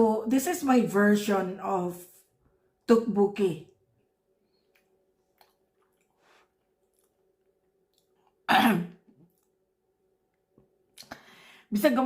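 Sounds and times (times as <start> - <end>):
faint steady hum: 0.0 - 12.0
woman coughing: 8.5 - 9.0.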